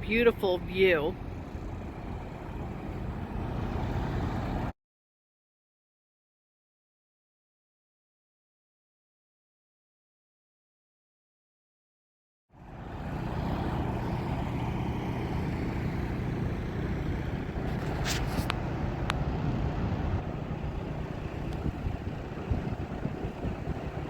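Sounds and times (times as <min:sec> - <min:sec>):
trucks idling and moving: 0:00.0 - 0:04.7, 0:12.6 - 0:24.0
low hum: 0:12.6 - 0:24.0.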